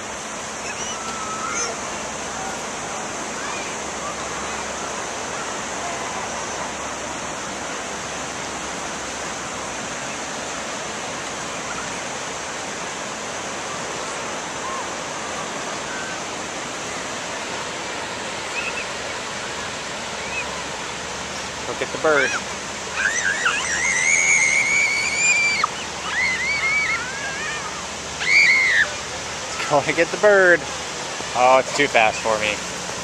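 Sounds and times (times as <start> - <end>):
ocean surf breaking on beach: 0.0 - 33.0.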